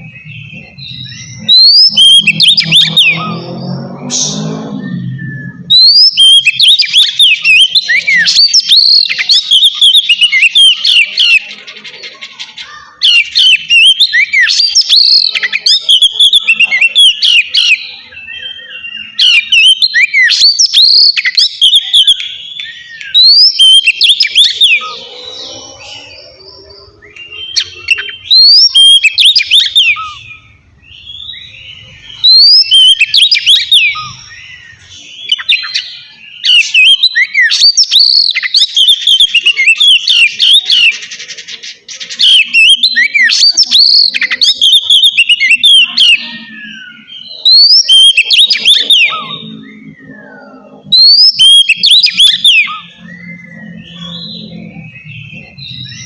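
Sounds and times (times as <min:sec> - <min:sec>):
bird singing rapid whistles: 0:00.0 - 0:11.5, 0:12.6 - 0:56.0.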